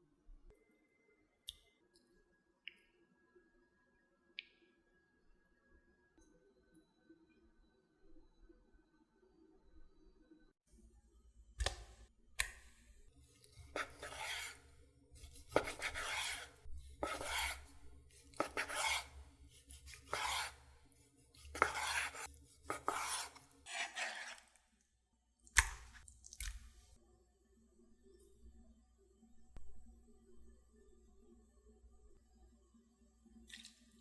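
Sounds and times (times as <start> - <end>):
knife rasping strokes: 13.4 - 24.6.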